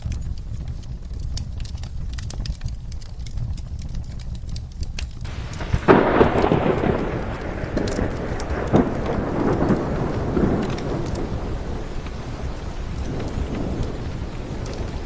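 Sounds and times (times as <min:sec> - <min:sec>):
wood fire crackling: 0:00.0 - 0:15.0
heavy rain: 0:05.2 - 0:15.0
thunder clap rolling: 0:05.2 - 0:15.0.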